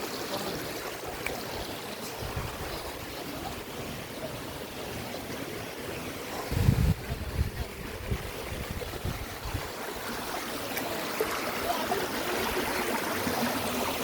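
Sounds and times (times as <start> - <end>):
stream water flowing over rocks: 0.0 - 14.0
wind gusts on microphone: 2.1 - 3.5, 6.4 - 9.8.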